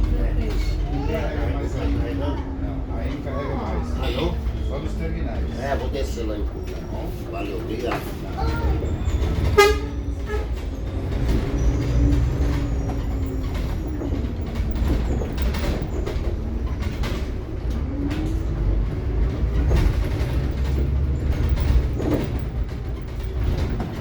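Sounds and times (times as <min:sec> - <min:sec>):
body and fittings rattling: 0:00.0 - 0:24.0
bus engine and road rumble: 0:00.0 - 0:24.0.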